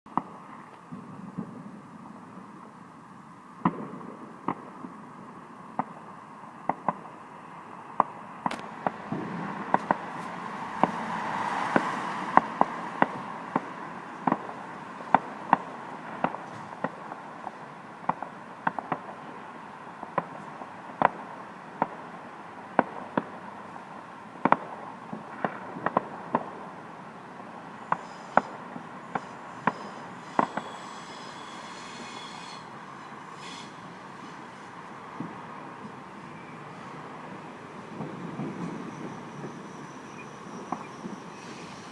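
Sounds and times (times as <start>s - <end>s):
fireworks cracking and popping: 0.1s - 2.8s, 3.6s - 41.9s
steady hiss: 26.8s - 41.9s
faint high whine: 27.6s - 41.9s.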